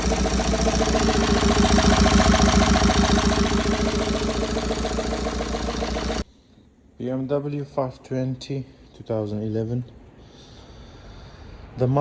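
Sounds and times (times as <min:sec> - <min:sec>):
diesel engine idling: 0:00.0 - 0:06.2.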